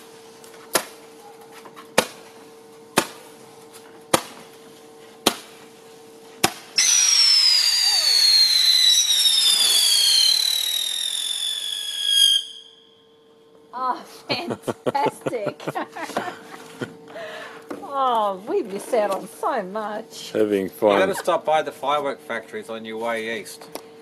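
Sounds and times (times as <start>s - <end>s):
firework shrill whistle: 6.8s - 13.2s.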